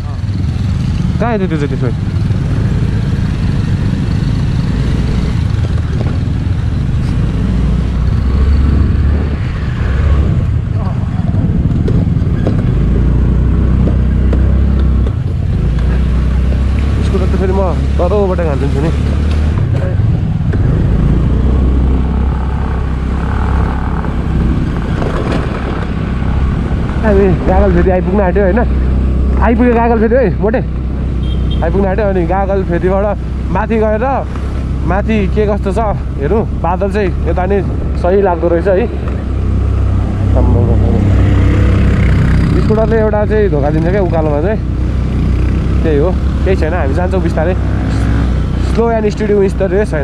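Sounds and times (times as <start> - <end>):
scooter engine rumbling: 17.4 - 47.2.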